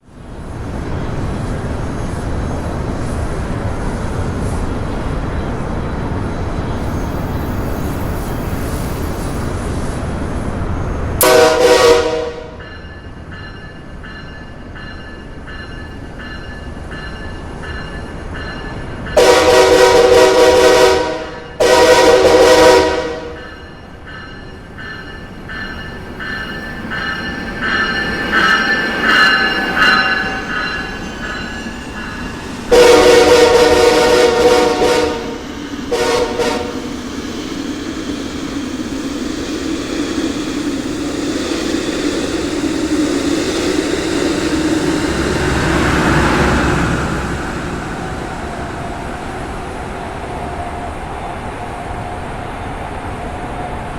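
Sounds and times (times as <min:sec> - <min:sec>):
train running noise: 0:00.0 - 0:53.9
pulsing train clatter: 0:00.2 - 0:53.9
train horn blasts: 0:11.2 - 0:12.6, 0:19.2 - 0:23.6, 0:32.7 - 0:36.9.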